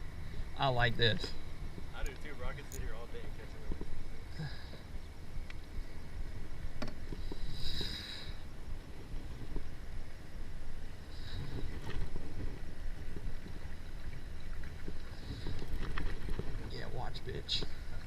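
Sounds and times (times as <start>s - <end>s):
water against kayak hull: 0.0s - 18.0s
wind buffeting microphone: 8.4s - 18.0s.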